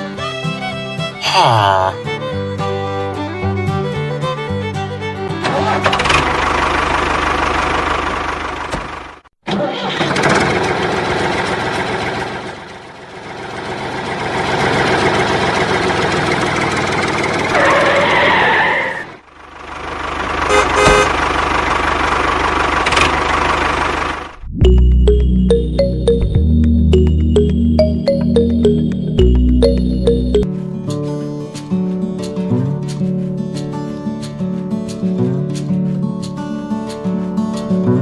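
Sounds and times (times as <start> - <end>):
engine running: 4.4 - 18.0, 19.2 - 30.8.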